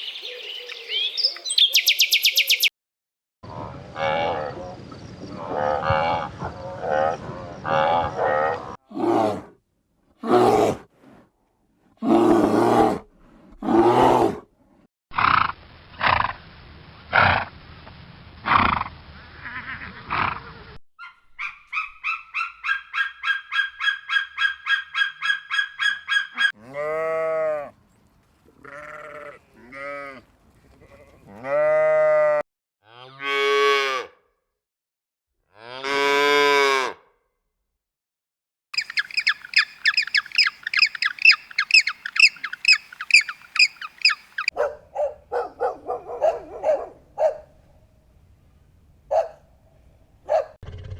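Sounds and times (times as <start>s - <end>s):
short pitched animal calls: 38.8s - 44.5s
farm animal calls: 38.8s - 44.6s.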